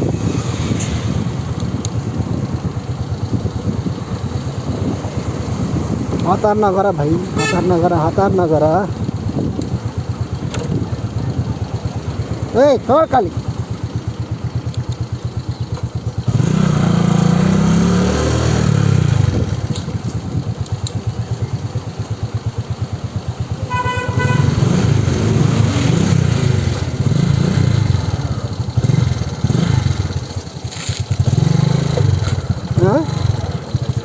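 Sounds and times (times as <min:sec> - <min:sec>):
motorcycle engine revving: 0:00.0 - 0:34.0
motorcycle horn: 0:07.2 - 0:08.3, 0:23.5 - 0:25.5.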